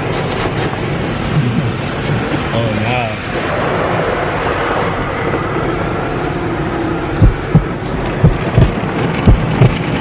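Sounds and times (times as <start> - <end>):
car wash machinery and spray: 0.0 - 10.0
deep thumps: 7.2 - 9.9.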